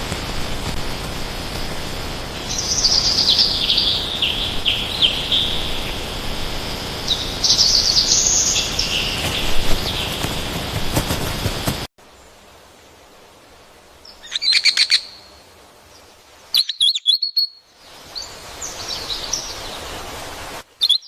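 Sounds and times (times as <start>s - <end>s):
steady background hiss: 0.0s - 21.0s
songbird singing high notes: 16.5s - 19.9s, 20.7s - 21.0s.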